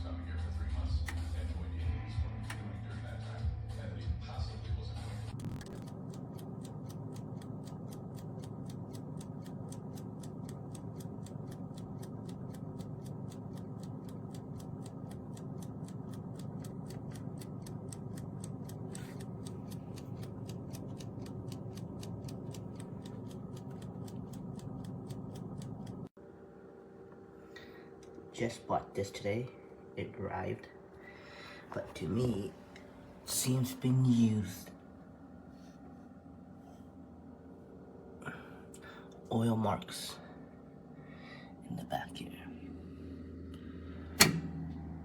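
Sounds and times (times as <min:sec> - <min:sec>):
toaster oven whirring: 0:02.0 - 0:26.2, 0:42.6 - 0:45.0
mechanical timer ticking: 0:05.4 - 0:26.1.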